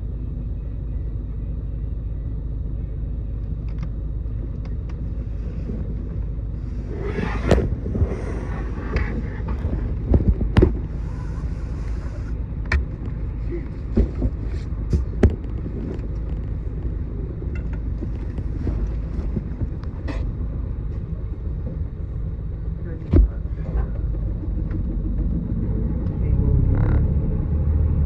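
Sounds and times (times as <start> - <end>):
bus engine and road rumble: 0.0 - 28.0
bodywork knocks and rattles: 12.6 - 20.3.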